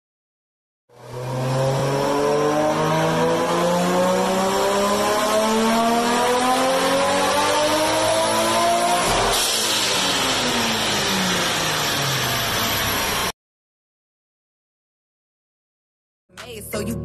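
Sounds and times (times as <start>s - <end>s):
car engine revving under load: 1.0s - 13.2s.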